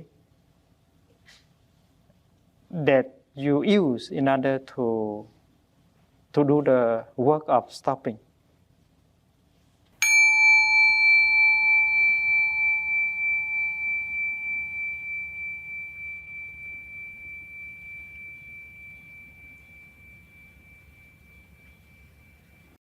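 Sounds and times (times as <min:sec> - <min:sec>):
meditation bowl ringing: 0:10.0 - 0:22.8.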